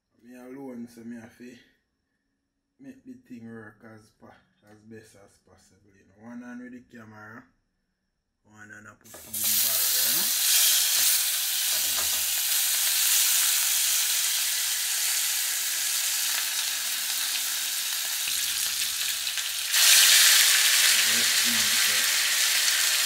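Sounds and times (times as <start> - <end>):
fish frying in oil: 9.1 - 23.0.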